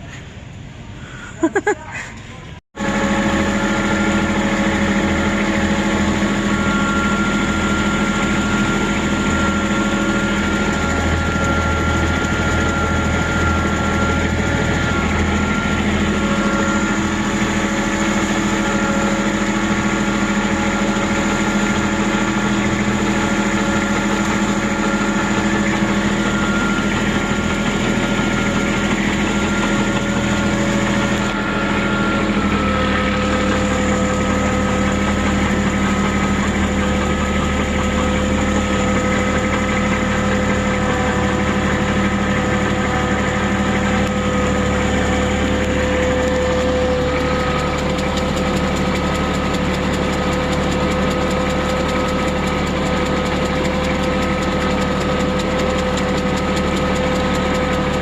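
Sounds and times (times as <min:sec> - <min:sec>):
engine droning steadily: 0:00.0 - 0:58.0.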